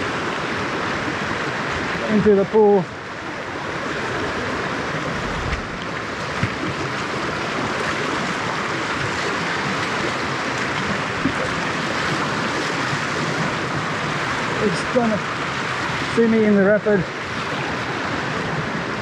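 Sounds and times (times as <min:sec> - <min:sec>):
stream rushing over rapid: 0:00.0 - 0:19.0.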